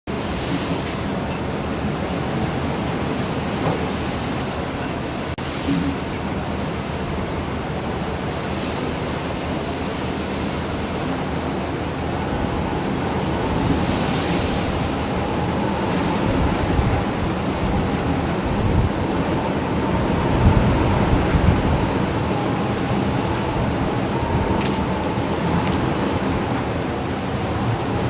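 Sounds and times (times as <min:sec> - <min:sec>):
sea waves crashing against ship: 0:00.1 - 0:28.0
wind buffeting microphone: 0:11.4 - 0:28.0.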